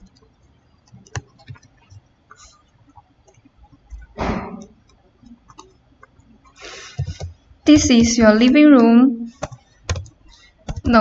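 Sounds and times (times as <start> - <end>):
computer mouse clicks: 0.0 - 2.6, 3.2 - 6.3, 9.4 - 11.0.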